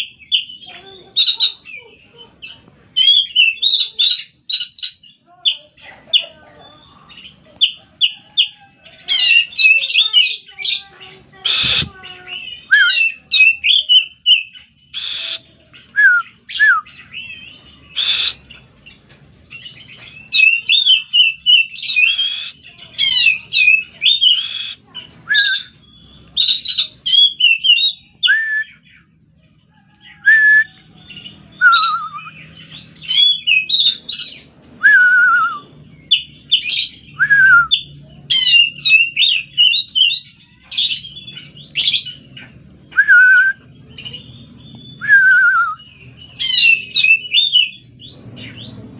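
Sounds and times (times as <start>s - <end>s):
bird singing whistled song: 11.5s - 18.6s, 20.2s - 22.6s, 23.2s - 29.0s, 31.5s - 40.3s, 42.9s - 48.8s.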